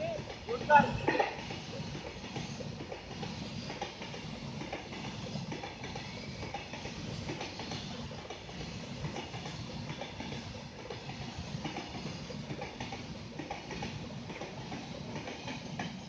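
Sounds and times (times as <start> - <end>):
train wheels clattering on rails: 0.0 - 16.0.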